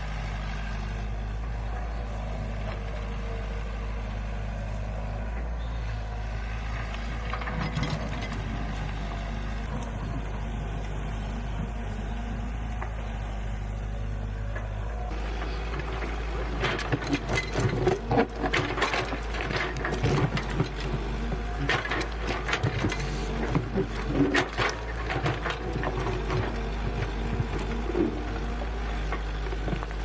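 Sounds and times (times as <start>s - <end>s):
clattering knocks and scrapes: 6.8s - 8.9s, 14.5s - 30.0s.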